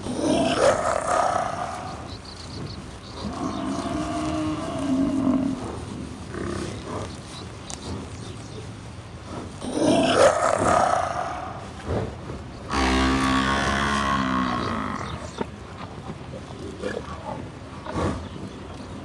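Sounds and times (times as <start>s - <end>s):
lions roaring and growling: 0.0s - 2.0s, 9.6s - 11.6s, 12.7s - 15.5s.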